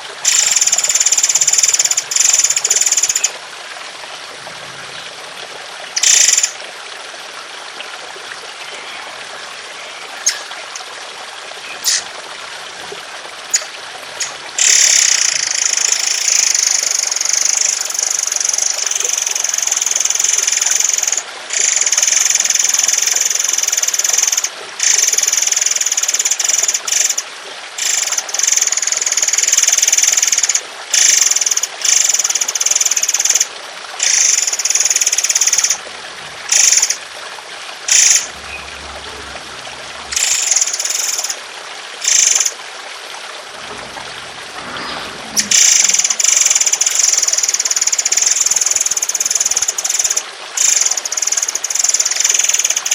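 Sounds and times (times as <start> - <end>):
trickle of running water: 0.0 - 52.9
songbird harsh rapid song: 8.8 - 10.9, 11.6 - 12.1.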